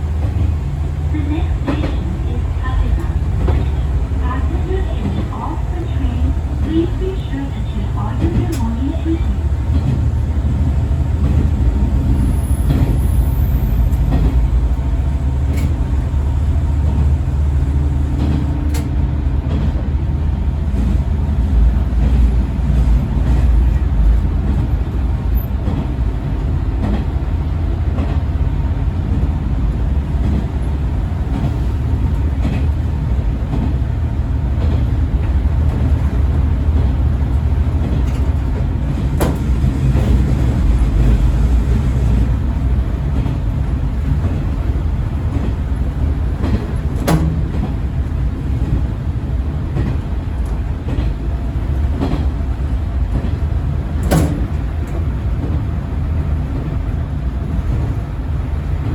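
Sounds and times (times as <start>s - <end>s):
diesel railcar rumbling: 0.0s - 58.9s.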